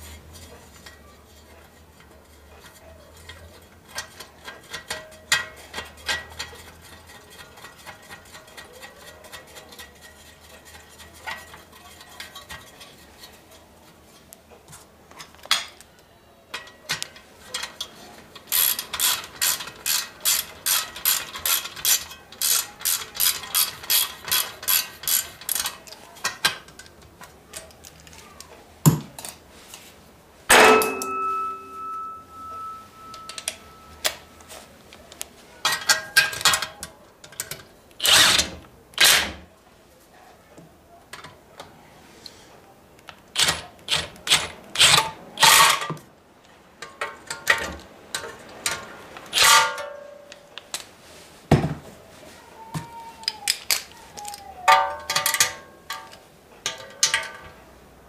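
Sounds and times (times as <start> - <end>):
metal engine parts clanking: 54.7 - 57.6.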